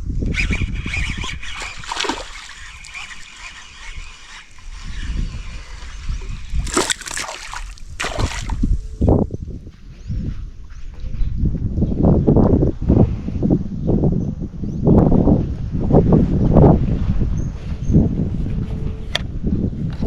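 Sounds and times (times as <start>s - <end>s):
water splashing in a creek: 0.9s - 8.7s.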